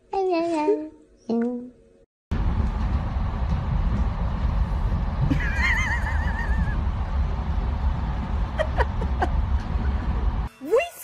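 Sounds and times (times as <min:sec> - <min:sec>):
low rumble: 0:02.3 - 0:10.5.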